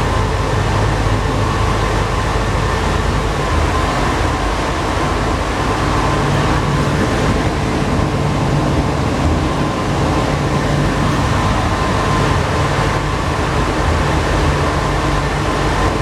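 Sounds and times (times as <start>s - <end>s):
low hum: 0.0s - 16.0s
metro train rolling noise: 0.0s - 16.0s.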